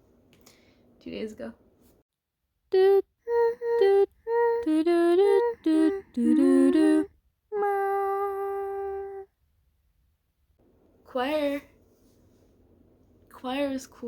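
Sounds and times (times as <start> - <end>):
person singing wordless tune: 2.7 - 9.3.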